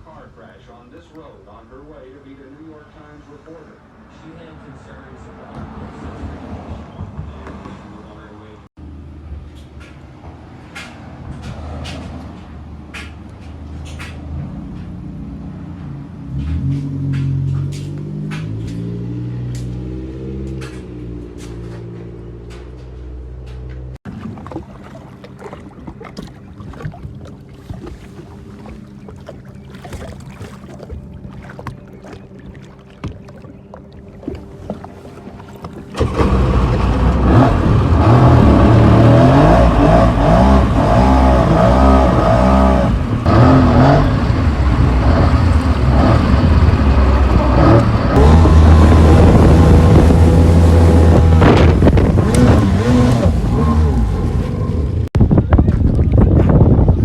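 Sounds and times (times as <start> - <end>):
jet ski engine: 24.1 - 55.1.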